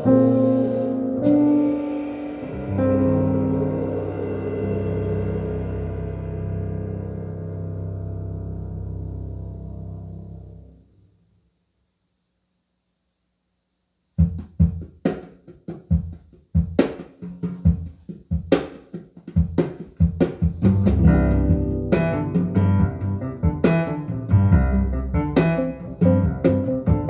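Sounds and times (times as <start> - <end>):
jazz drum kit: 0.0 - 9.3, 14.1 - 27.0
piano: 0.0 - 11.3, 20.0 - 27.0
double bass: 2.5 - 10.8, 20.6 - 27.0.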